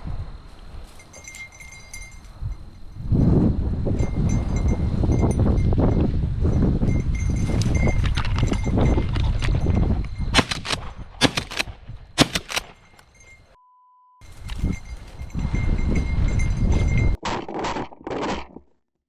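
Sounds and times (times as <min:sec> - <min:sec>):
wind buffeting microphone: 0:00.0 - 0:13.5, 0:14.2 - 0:17.2
sharp clattering bursts: 0:10.4 - 0:13.2.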